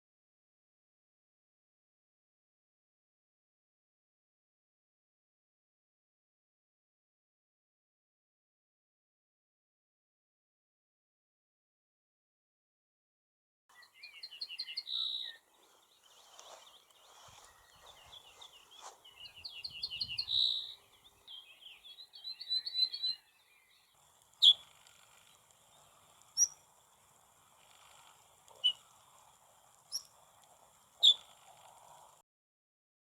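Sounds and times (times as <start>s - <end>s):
bird sharp calls: 13.7s - 26.8s, 27.6s - 29.0s, 29.8s - 30.2s, 31.0s - 31.4s
songbird singing: 13.7s - 30.3s, 31.0s - 31.5s.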